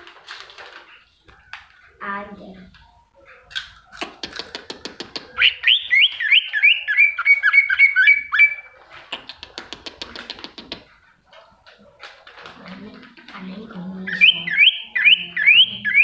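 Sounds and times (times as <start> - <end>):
songbird clicking chatter: 0.4 - 16.0
bird whistled notes: 5.3 - 8.8, 14.1 - 16.0.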